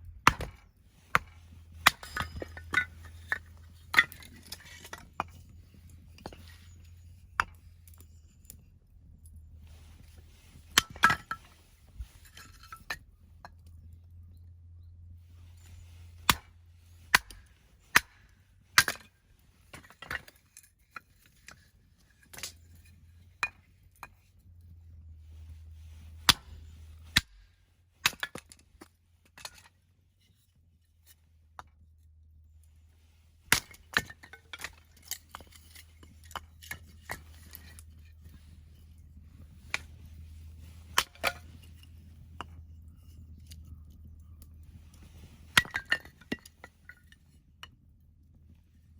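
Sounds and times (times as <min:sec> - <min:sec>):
axe splitting firewood: 0:00.2 - 0:08.0, 0:09.9 - 0:11.5, 0:16.0 - 0:16.5, 0:17.1 - 0:19.1, 0:26.0 - 0:28.6, 0:33.5 - 0:43.8, 0:44.7 - 0:47.1
steady low hum: 0:31.2 - 0:48.9.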